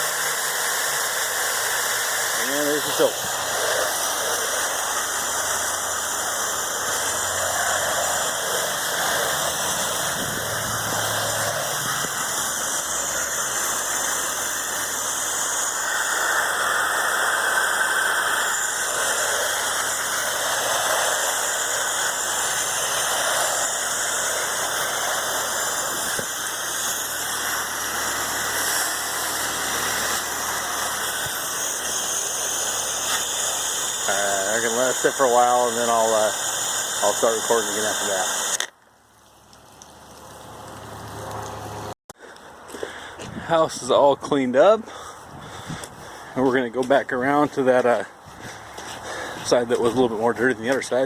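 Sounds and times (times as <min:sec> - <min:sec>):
water spray hissing: 0:00.0 - 0:38.6
pressure washer droning: 0:00.0 - 0:51.0.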